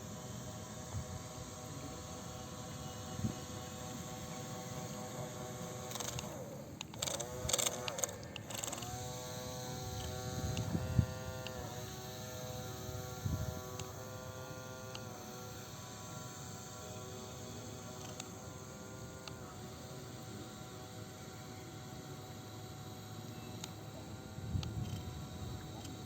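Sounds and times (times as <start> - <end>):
electric motors whirring: 0.0 - 26.0.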